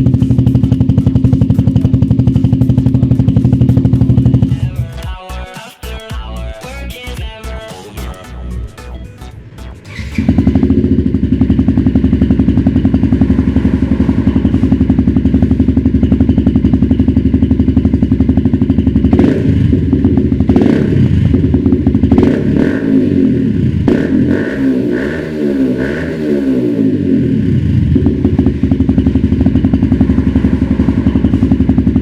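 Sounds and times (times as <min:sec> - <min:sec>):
motorcycle engine idling and revving: 0:00.0 - 0:32.0.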